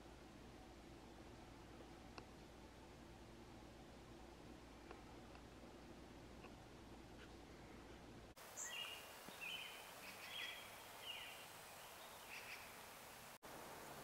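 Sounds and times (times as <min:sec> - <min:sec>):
trail camera hiss: 0:00.0 - 0:14.0
bird chirps: 0:08.6 - 0:12.8.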